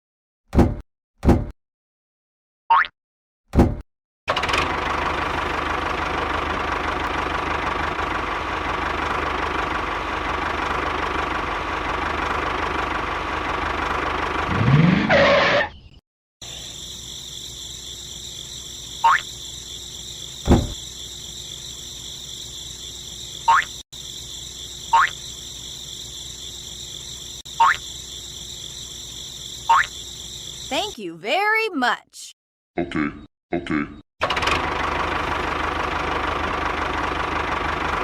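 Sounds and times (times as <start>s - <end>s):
thump: 0.6s - 1.5s, 3.6s - 3.8s, 20.5s - 20.8s.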